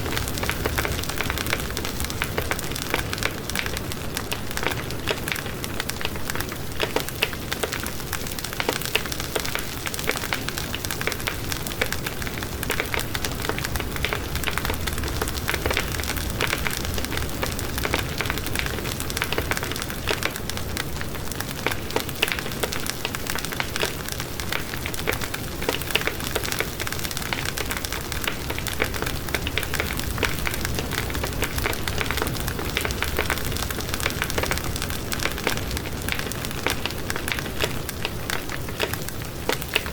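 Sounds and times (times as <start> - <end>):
flames rumbling: 0.0 - 39.9
wood fire crackling: 0.0 - 39.9.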